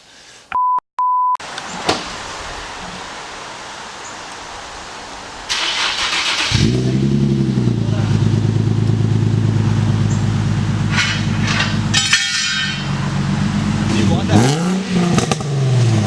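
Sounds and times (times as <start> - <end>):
car engine starting and idling: 5.5 - 16.0.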